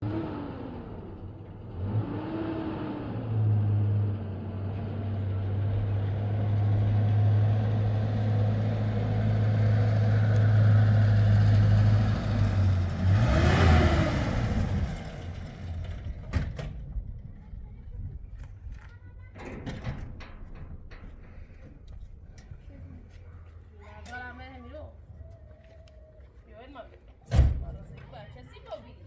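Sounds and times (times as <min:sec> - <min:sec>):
engine running: 0:00.0 - 0:17.3.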